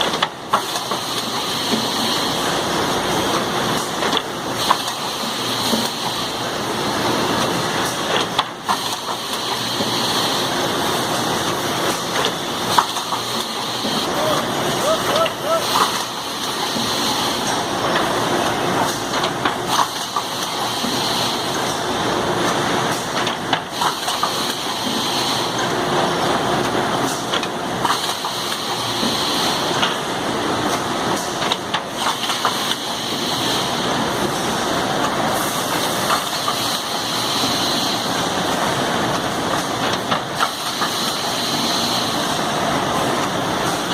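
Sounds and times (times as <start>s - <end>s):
machine hiss: 19.7s - 21.9s, 23.7s - 25.6s, 35.3s - 38.6s, 40.3s - 42.7s.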